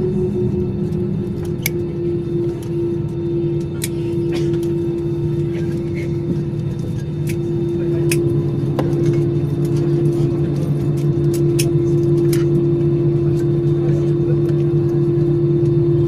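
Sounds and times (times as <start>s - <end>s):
aircraft cabin engine drone: 0.0s - 16.0s.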